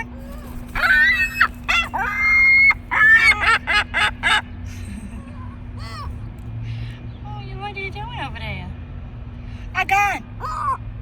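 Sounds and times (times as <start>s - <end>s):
gulls calling: 0.0s - 6.3s, 9.8s - 10.9s.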